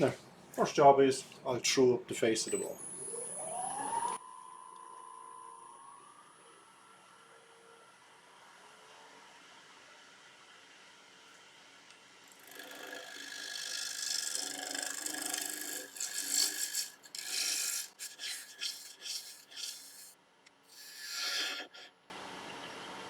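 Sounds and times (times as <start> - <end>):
gouge scraping spinning wood on lathe: 12.3 - 22.0.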